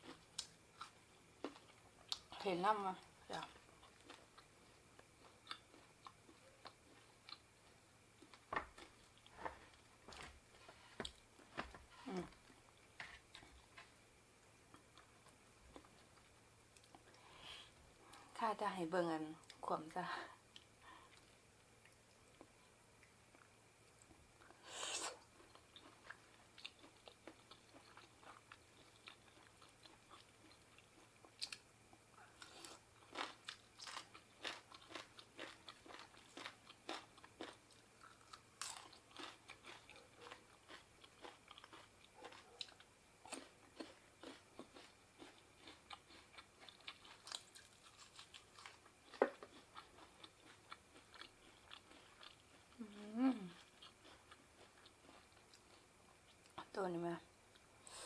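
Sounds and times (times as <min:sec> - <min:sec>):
person chewing and crunching food: 0:00.0 - 0:14.1, 0:14.7 - 0:18.3, 0:20.4 - 0:56.7
person humming: 0:12.0 - 0:12.4, 0:52.8 - 0:53.6.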